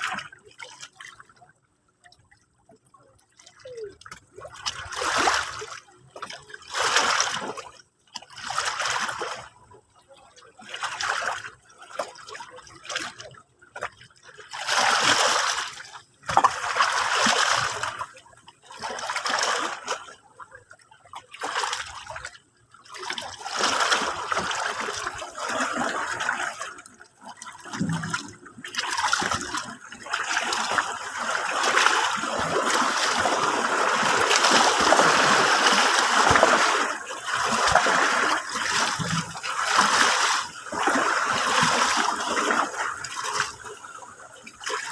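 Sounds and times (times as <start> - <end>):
sea waves washing on shore: 27.6 - 43.8.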